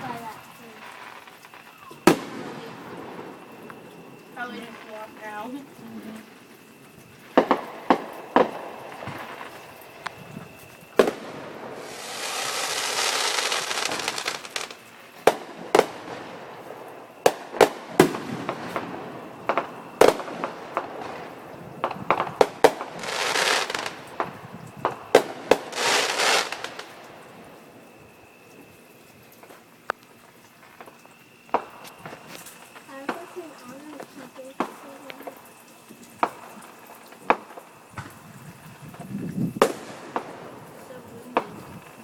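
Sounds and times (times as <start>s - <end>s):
fireworks bangs: 0.0s - 5.7s, 7.1s - 27.9s, 36.2s - 42.0s
fireworks crackling and hissing: 0.0s - 42.0s.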